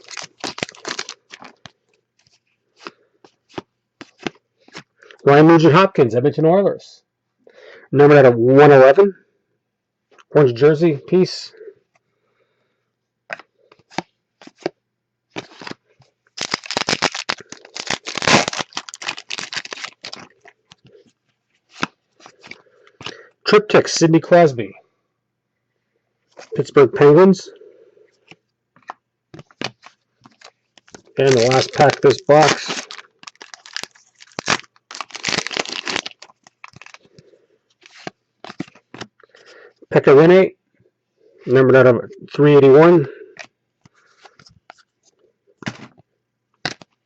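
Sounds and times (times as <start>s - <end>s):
card pack wrapper crinkling: 0.0s - 4.9s, 13.3s - 14.7s, 15.4s - 20.9s, 21.7s - 23.2s, 28.8s - 39.5s, 46.6s - 47.0s.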